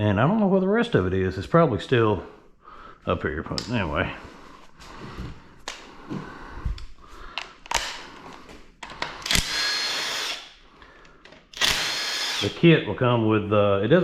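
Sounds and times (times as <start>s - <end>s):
power tool running: 9.2s - 10.5s, 11.6s - 12.6s.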